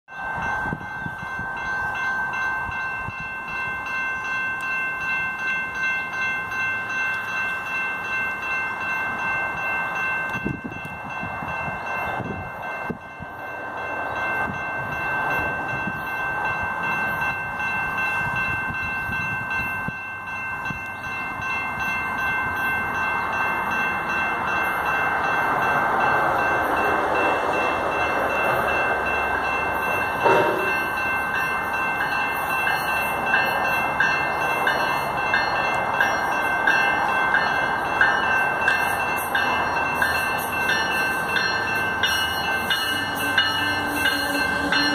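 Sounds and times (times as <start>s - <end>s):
high ringing tone: 0.1s - 44.9s
train rumble: 0.1s - 44.9s.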